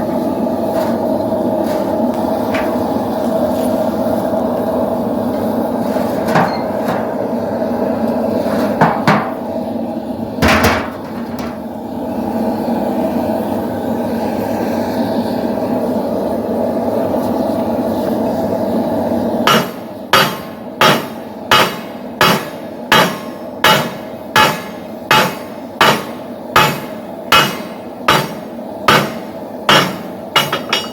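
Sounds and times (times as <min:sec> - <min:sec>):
metal clanks: 0:01.7 - 0:02.9, 0:05.4 - 0:07.2, 0:10.4 - 0:11.7, 0:30.4 - 0:30.9
hammer striking steel on anvil: 0:08.8 - 0:09.4, 0:19.5 - 0:30.9.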